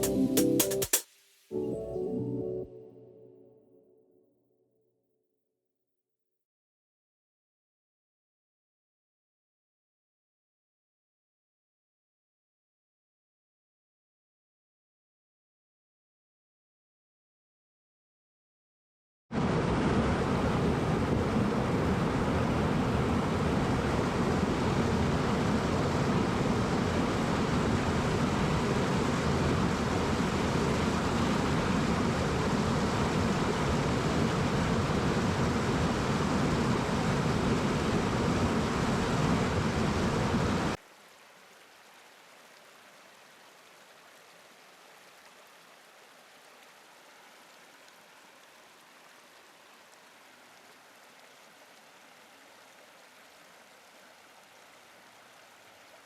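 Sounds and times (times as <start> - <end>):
faint rain hiss: 0.0 - 2.6, 19.4 - 56.0
heavy rain: 19.4 - 56.0.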